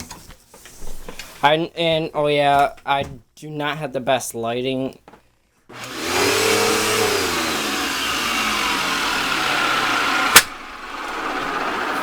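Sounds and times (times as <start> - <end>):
vacuum cleaner motor running: 5.7 - 12.0
sharp click: 10.3 - 10.6.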